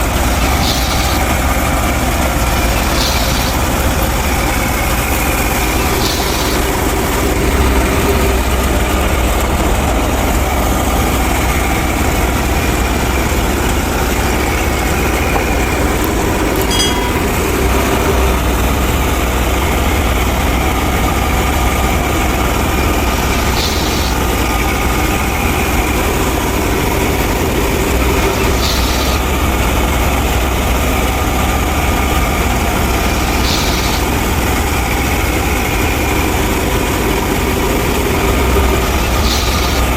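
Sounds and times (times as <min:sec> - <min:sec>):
tractor engine rumbling: 0:00.0 - 0:39.9
faint short rattle: 0:14.4 - 0:18.4.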